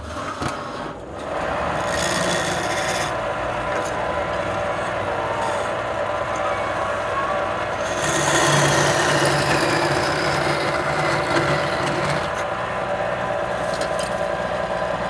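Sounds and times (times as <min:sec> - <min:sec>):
turning tool scraping wood: 0:00.0 - 0:06.4, 0:07.4 - 0:12.5, 0:13.5 - 0:15.0
wood lathe humming: 0:01.0 - 0:15.0.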